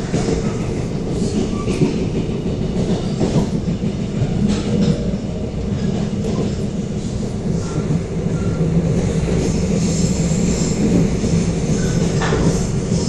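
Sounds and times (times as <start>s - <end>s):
rumble of train wheels on rail: 0.0s - 13.0s.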